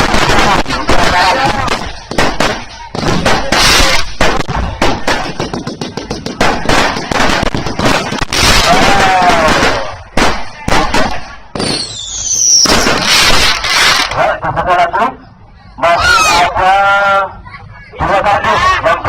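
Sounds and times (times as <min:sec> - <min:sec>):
firework whistling: 0:00.0 - 0:14.2
fireworks bangs and pops: 0:00.0 - 0:14.2
fireworks crackling: 0:00.0 - 0:14.2.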